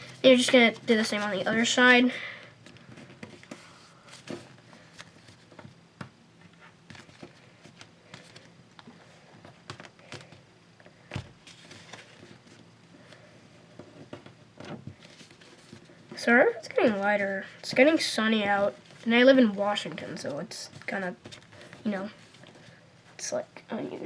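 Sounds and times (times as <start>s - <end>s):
paper rustling: 0.0s - 1.9s, 6.6s - 10.4s, 11.4s - 13.2s, 14.0s - 16.1s.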